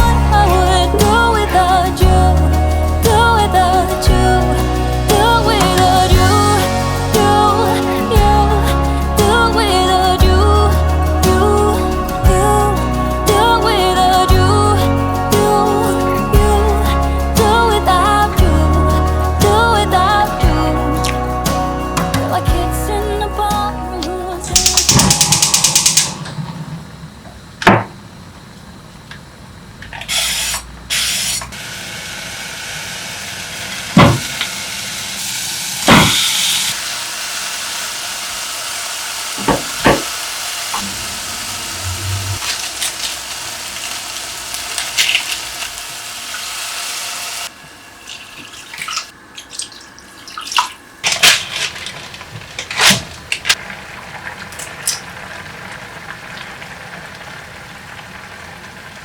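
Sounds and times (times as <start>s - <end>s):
water running from tap: 31.5s - 59.0s.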